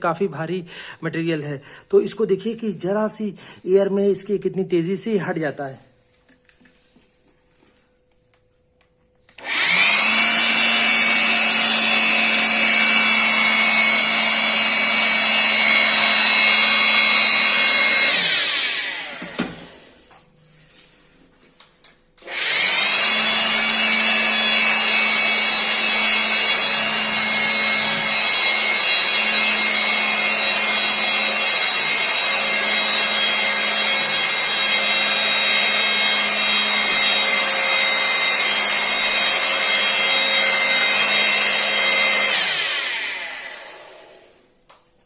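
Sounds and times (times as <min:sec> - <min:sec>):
electric air blower whining: 0:09.3 - 0:20.1, 0:22.2 - 0:44.5.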